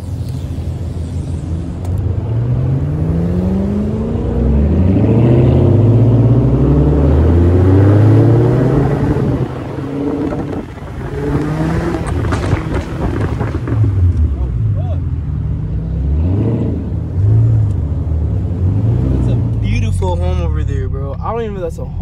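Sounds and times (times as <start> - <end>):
car engine accelerating: 0.3 - 22.0.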